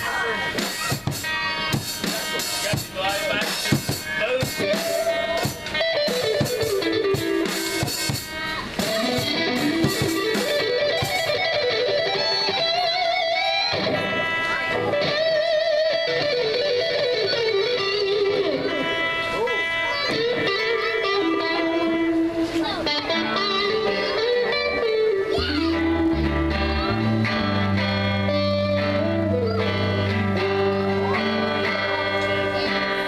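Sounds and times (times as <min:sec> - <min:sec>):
drum hits: 0:00.0 - 0:11.4
electric guitar bent notes: 0:00.0 - 0:33.0
live rock band playing: 0:00.0 - 0:33.0.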